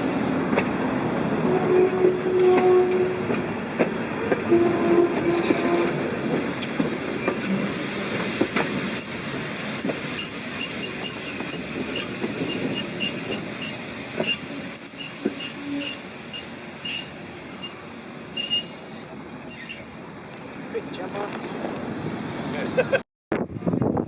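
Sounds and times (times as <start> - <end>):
wheels clicking over rail joints: 6.0 - 20.5
metallic wheel squeal: 8.9 - 20.3.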